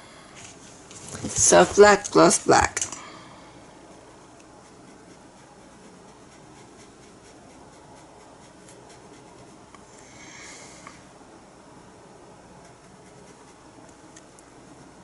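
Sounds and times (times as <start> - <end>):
paintbrush strokes on canvas: 0.4 - 2.4, 3.8 - 10.0, 12.6 - 13.9.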